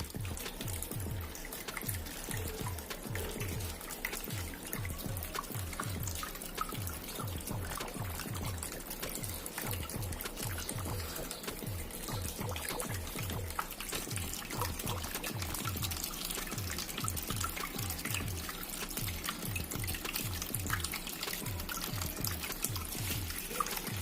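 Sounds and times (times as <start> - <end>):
background music with low beat: 0.0 - 24.0
fountain water trickling: 0.0 - 24.0.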